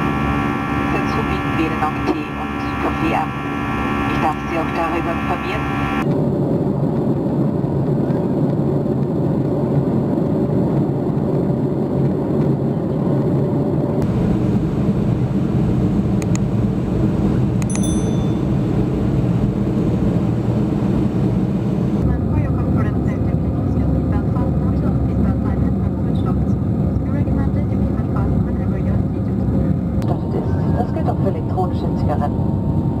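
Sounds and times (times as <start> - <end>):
airplane cabin engine rumble: 0.0 - 33.0
short high ping: 17.7 - 18.6.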